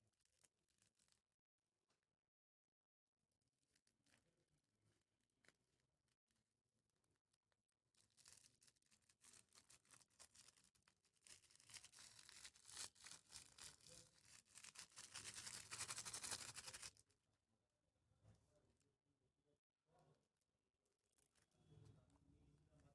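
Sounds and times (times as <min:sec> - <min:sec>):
crunchy slime crackling and popping: 0:08.0 - 0:17.0.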